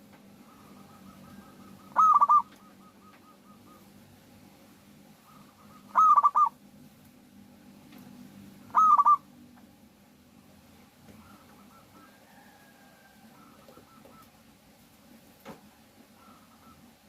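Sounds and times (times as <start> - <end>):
dove cooing: 0.3 - 4.0, 5.2 - 6.6, 8.6 - 9.3, 11.1 - 14.6, 16.0 - 17.0.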